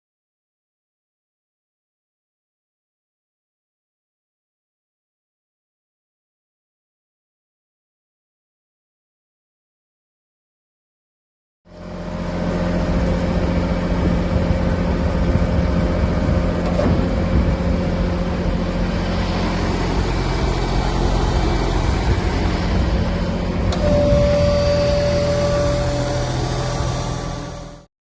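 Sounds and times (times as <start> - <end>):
high steady whine: 11.7 - 27.9
tractor engine running: 11.7 - 27.9.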